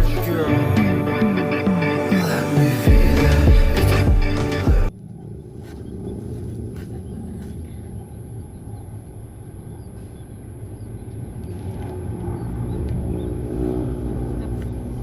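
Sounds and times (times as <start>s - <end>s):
steady low rumble: 4.9s - 15.0s.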